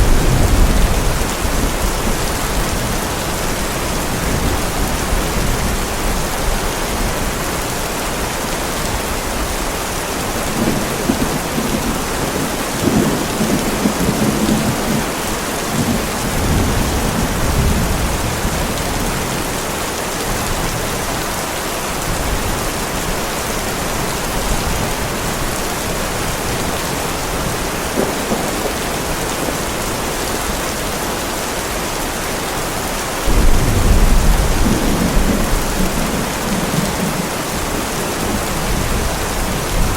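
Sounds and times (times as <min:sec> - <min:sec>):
thunder clap: 0:00.0 - 0:05.8, 0:10.4 - 0:19.1, 0:26.6 - 0:30.6, 0:33.3 - 0:39.9
thunder rumbling: 0:00.0 - 0:07.5, 0:08.9 - 0:19.7, 0:22.0 - 0:31.1, 0:33.2 - 0:39.9
heavy rain falling: 0:00.0 - 0:39.9.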